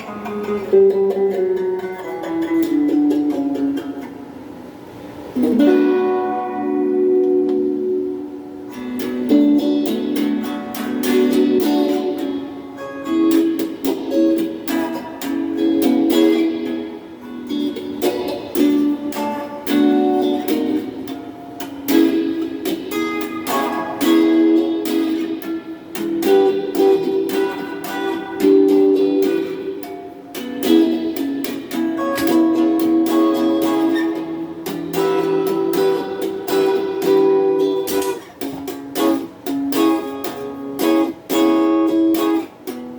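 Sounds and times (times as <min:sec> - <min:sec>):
clean electric guitar with phaser: 0:00.0 - 0:42.9.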